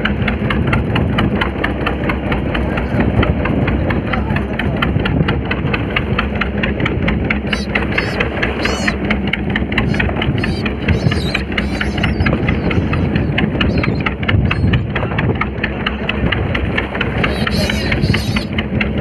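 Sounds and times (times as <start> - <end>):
boat engine knocking: 0.0 - 19.0
seabirds warbling calls: 7.2 - 15.3, 16.5 - 18.9.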